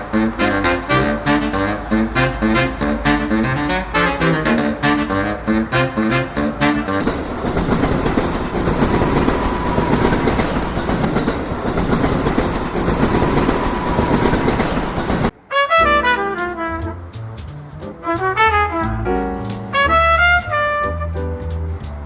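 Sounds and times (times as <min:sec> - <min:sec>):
brass jazz music: 0:00.0 - 0:07.3, 0:15.2 - 0:22.0
train rumbling on rails: 0:00.0 - 0:22.0.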